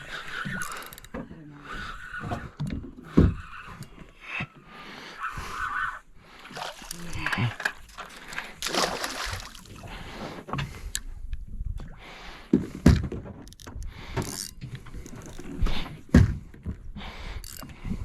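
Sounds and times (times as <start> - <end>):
boat and water noise: 0.0 - 18.0
knocks and thumps on a boat: 0.4 - 3.6, 12.5 - 18.0.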